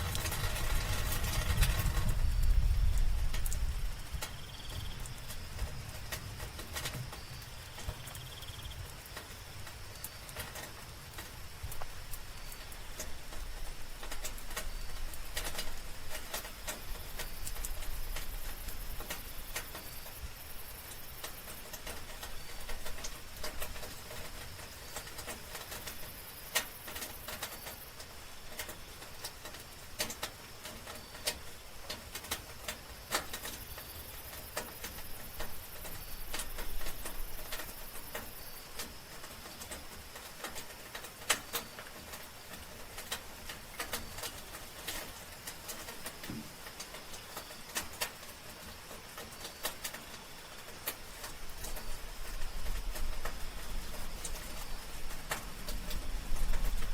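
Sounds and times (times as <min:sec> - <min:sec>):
high insect trill: 0:00.0 - 0:30.2, 0:30.8 - 0:56.9
soft rain falling: 0:00.0 - 0:56.9.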